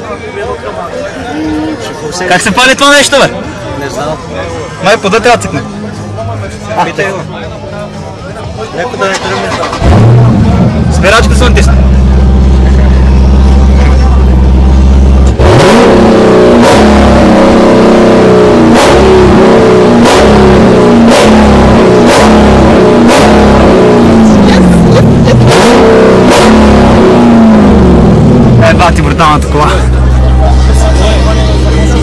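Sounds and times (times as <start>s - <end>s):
car engine idling and revving: 0.0s - 32.0s
exhaust cracks: 9.0s - 32.0s.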